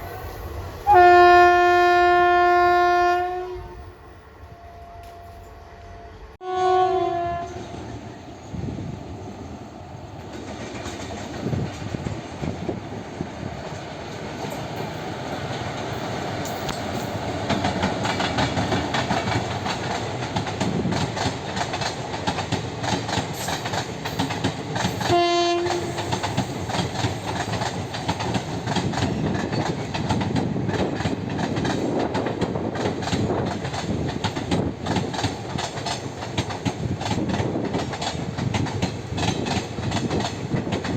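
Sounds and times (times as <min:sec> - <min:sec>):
locomotive horn blast: 0:00.8 - 0:03.8, 0:04.4 - 0:07.8, 0:25.0 - 0:26.2
train wheels rumbling and rattling: 0:07.3 - 0:40.9.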